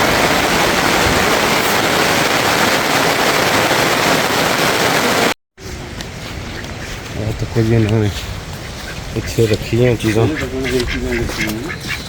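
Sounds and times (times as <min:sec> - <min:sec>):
heavy rain: 0:00.0 - 0:05.4.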